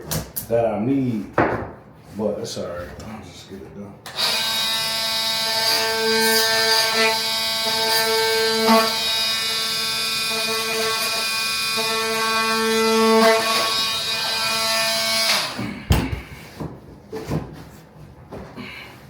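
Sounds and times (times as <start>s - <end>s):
power tool cutting plank: 4.1s - 15.6s.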